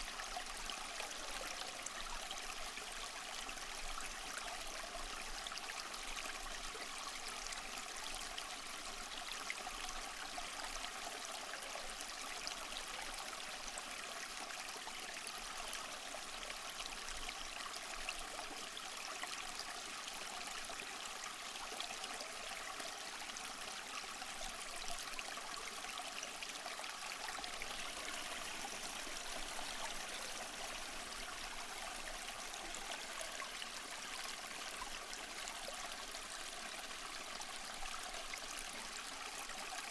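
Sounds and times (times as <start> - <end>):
small waterfall splashing: 10.8 - 39.9.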